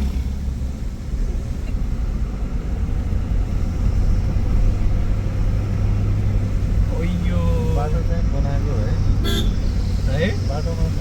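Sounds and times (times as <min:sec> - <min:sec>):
car engine droning: 0:00.0 - 0:11.0
road noise: 0:00.0 - 0:11.0.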